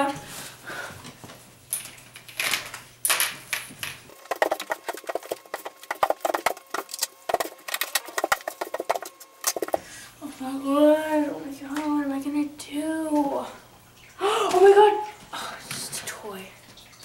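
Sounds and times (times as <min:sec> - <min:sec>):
rapid clicking and clattering: 0:02.4 - 0:09.8.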